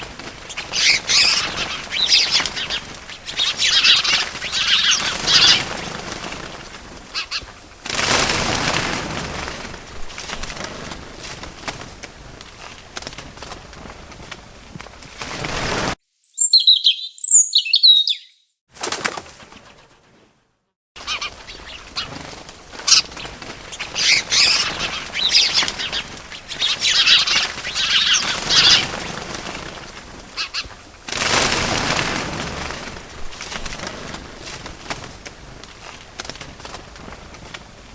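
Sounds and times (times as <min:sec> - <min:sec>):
small birds chirping: 0:00.0 - 0:07.7, 0:16.1 - 0:18.6, 0:21.0 - 0:30.9
wings flapping: 0:00.0 - 0:16.0, 0:18.7 - 0:20.4, 0:21.0 - 0:37.9
outdoor background noise: 0:00.0 - 0:18.1, 0:18.7 - 0:37.9.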